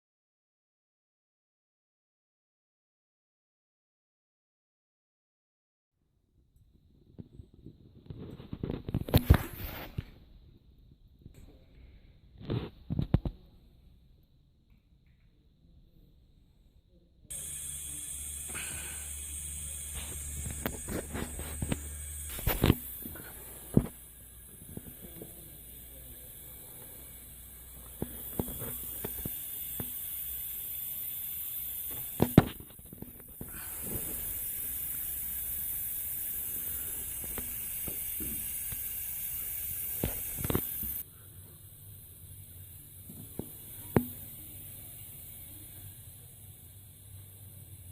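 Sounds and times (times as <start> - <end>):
air hissing: 17.3 - 47.9
machine humming: 17.3 - 47.9.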